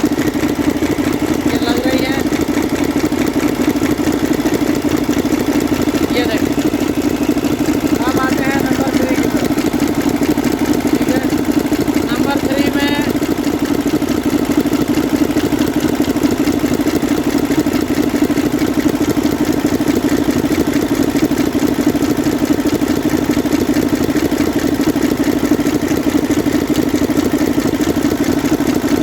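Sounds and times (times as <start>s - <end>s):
diesel engine idling with clatter: 0.0s - 29.0s.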